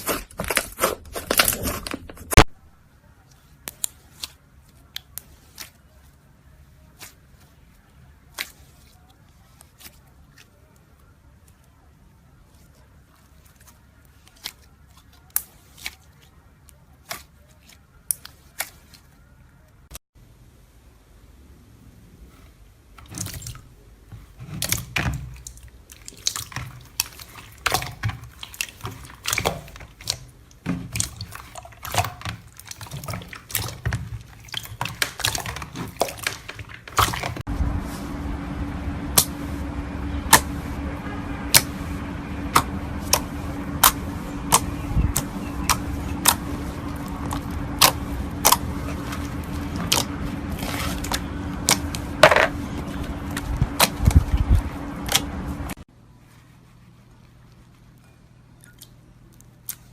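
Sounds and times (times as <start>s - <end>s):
steady low hum: 20.2s - 59.9s.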